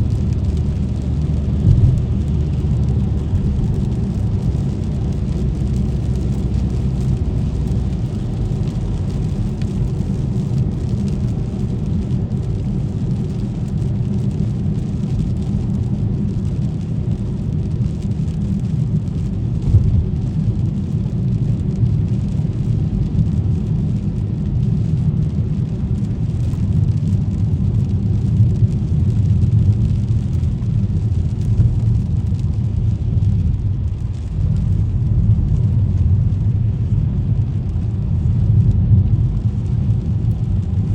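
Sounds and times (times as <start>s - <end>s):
car engine rumble: 0.0s - 40.9s
tyres on wet street: 0.0s - 40.9s.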